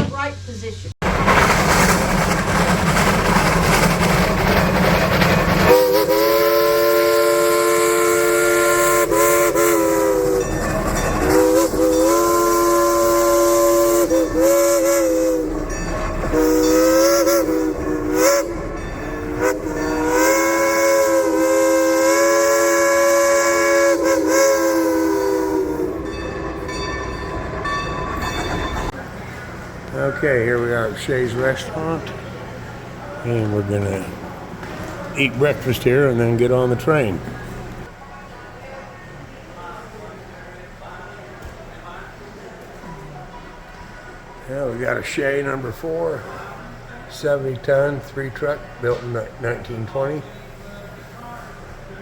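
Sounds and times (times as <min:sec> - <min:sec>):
steam hissing: 0:01.0 - 0:26.7
steam locomotive chime whistle: 0:05.6 - 0:29.0.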